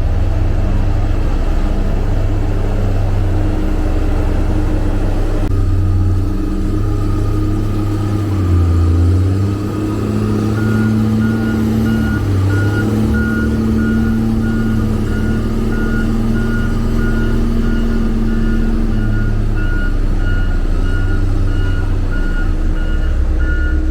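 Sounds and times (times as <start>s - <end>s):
diesel engine running under load: 0.0s - 23.9s
reversing alarm beeping: 5.5s - 23.9s.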